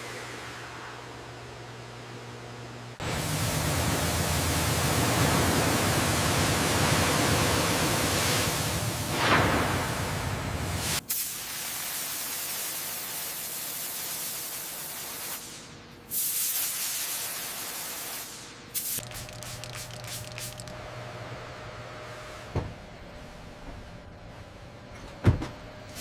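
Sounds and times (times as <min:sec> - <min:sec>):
hissing spray: 0:03.0 - 0:12.9, 0:16.1 - 0:24.6
sharp clicks: 0:19.0 - 0:20.8.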